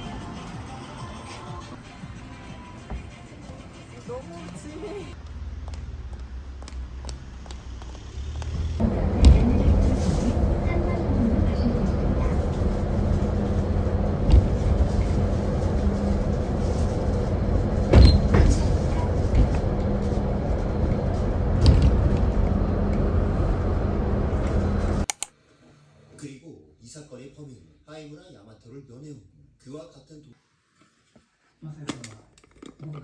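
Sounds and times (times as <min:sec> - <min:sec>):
moving vehicle rumble: 0:05.1 - 0:25.2
light knocks: 0:08.8 - 0:25.0.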